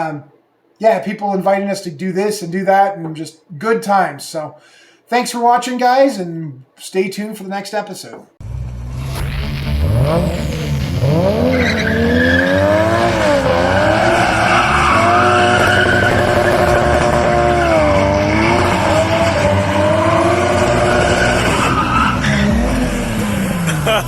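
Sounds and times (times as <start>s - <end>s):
car engine revving hard: 8.4s - 24.0s.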